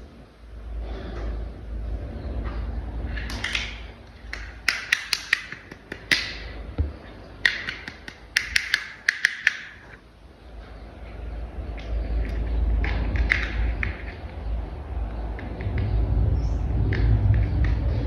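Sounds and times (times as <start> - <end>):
plastic toy parts clicking: 3.2 - 6.4, 7.4 - 9.8.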